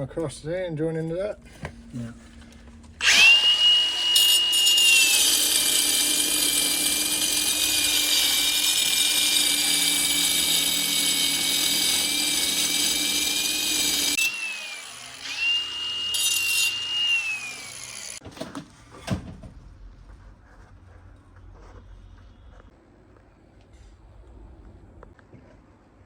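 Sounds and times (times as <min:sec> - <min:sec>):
power tool whining and cutting: 0:03.0 - 0:18.2.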